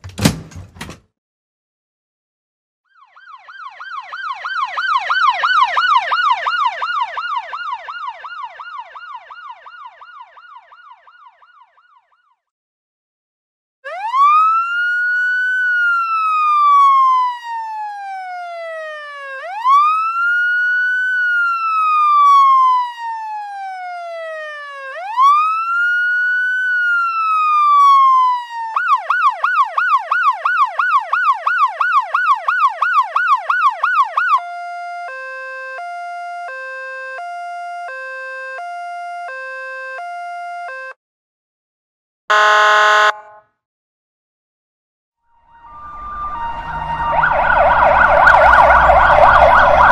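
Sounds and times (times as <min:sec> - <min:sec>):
fast yelp siren: 0:02.9 - 0:12.4, 0:13.8 - 0:40.9, 0:42.3 - 0:43.4, 0:45.5 - 0:49.9
slow wailing siren: 0:02.9 - 0:12.5, 0:13.8 - 0:41.0, 0:42.3 - 0:43.4, 0:45.3 - 0:49.9.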